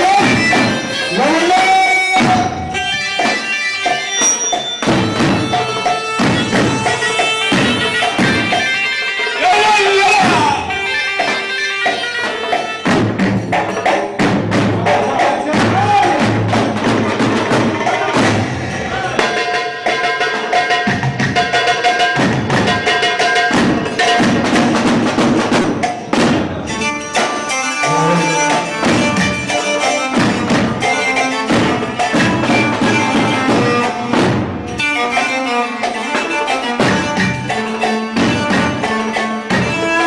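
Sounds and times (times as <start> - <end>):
quick dense percussion strikes: 2.1 - 8.8, 12.8 - 34.9
held melody line: 26.6 - 33.9.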